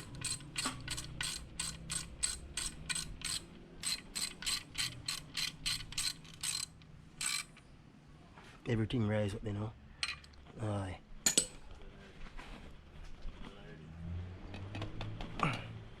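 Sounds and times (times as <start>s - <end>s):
ratchet wrench clicking: 0.0s - 7.6s.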